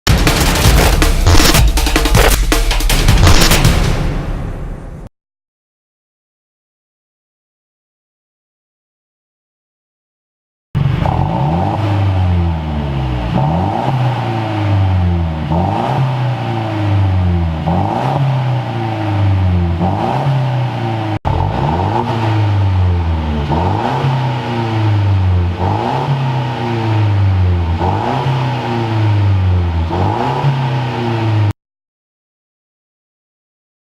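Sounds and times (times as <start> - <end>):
car engine revving: 0.1 - 3.8, 10.8 - 31.6.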